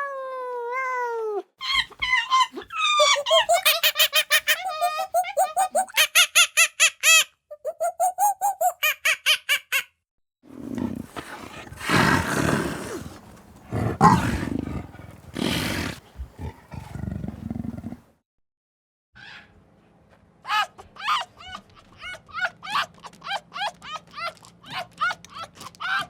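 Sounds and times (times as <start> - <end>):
rough roaring animal calls: 10.6 - 18.0.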